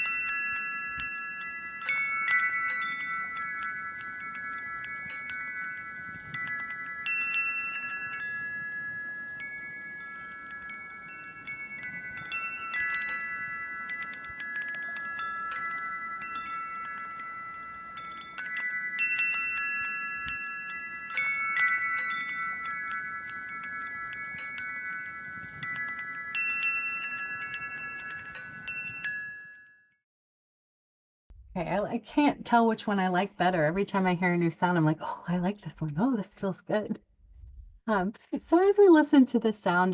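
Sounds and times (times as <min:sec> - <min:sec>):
wind chimes ringing: 0:00.0 - 0:30.0.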